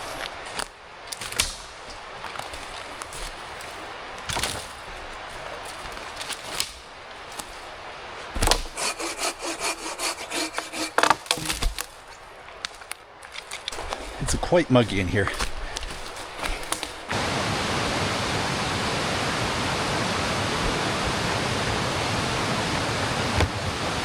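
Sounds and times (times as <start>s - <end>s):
branch knocks and cracks: 0.5s - 3.4s, 4.2s - 4.8s, 5.7s - 7.6s, 8.3s - 8.8s, 11.0s - 14.0s, 15.3s - 17.1s
hand saw strokes: 8.4s - 11.6s.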